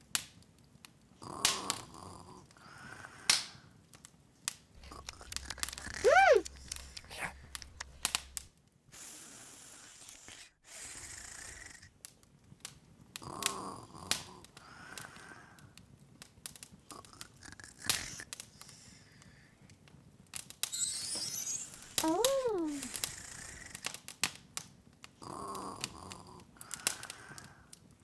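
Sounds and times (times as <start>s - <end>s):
wood fire crackling and popping: 4.8s - 8.5s
soft hiss of fire: 17.7s - 24.2s.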